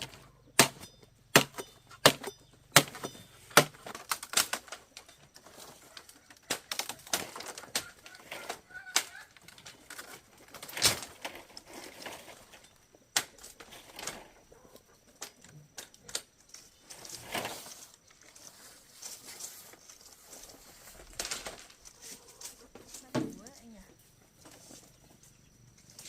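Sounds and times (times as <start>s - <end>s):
chickens clucking: 5.4s - 10.4s.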